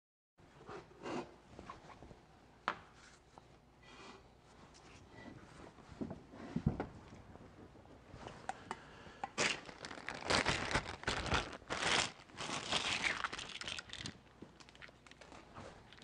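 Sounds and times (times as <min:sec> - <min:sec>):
packaging crinkling and tearing: 0:09.4 - 0:16.0.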